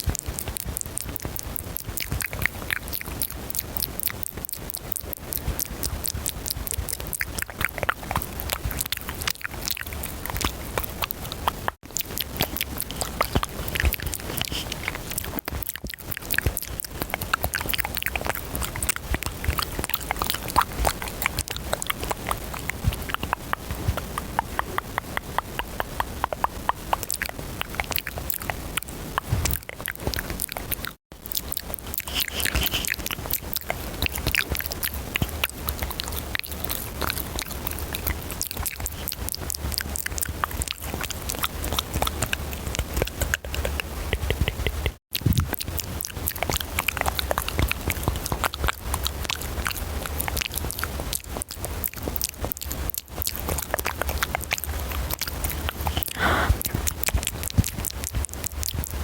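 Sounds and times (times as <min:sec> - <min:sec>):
wet mouth clicks and smacks: 0:00.1 - 0:59.0.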